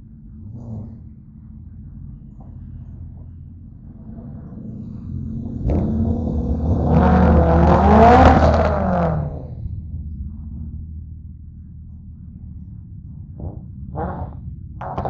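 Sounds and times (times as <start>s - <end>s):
car engine revving past: 4.0s - 9.7s.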